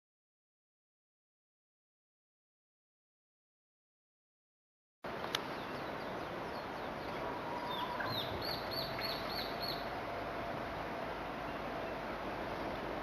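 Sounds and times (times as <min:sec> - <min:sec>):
steady background hiss: 0:05.1 - 0:13.0
bird singing whistle and notes: 0:05.4 - 0:09.9.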